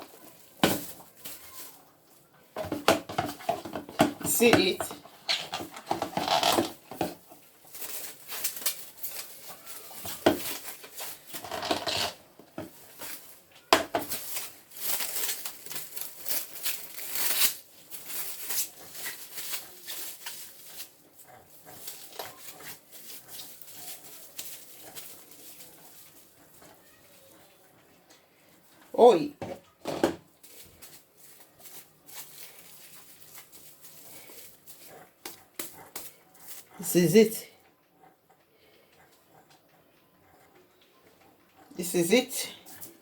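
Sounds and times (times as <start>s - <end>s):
utensil scraping a bowl: 11.3s - 12.2s.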